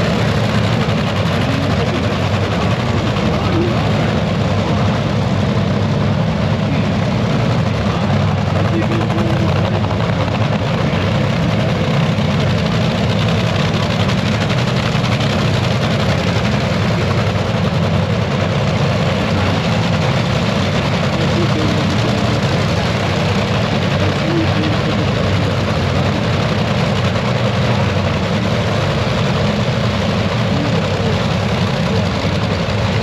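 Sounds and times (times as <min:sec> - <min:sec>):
engine idling: 0:00.0 - 0:33.0.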